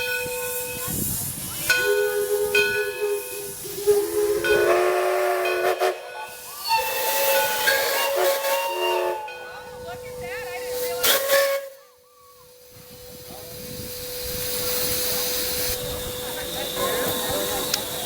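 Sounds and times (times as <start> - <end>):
hiss of steam: 0.0 - 18.0
steam whistle blowing: 1.7 - 9.4, 10.7 - 18.0.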